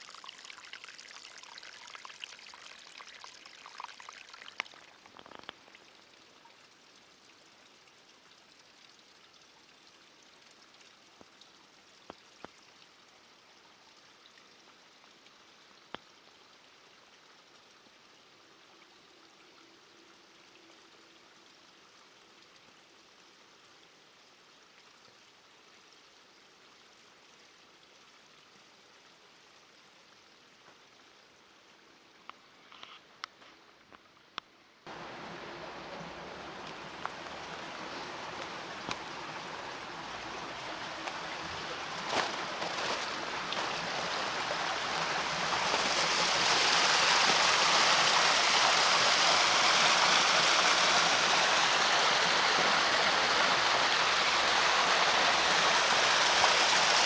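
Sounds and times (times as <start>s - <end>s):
rushing water hiss: 34.9s - 57.0s.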